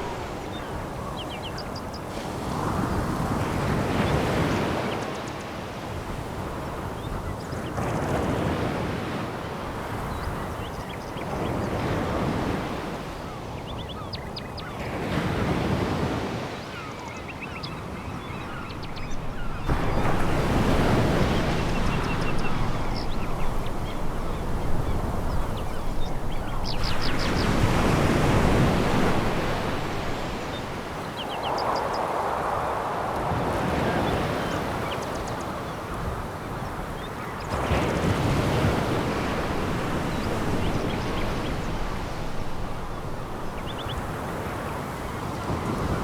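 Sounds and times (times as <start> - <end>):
waves washing over pebble beach: 18.5 - 34.8, 37.5 - 46.0.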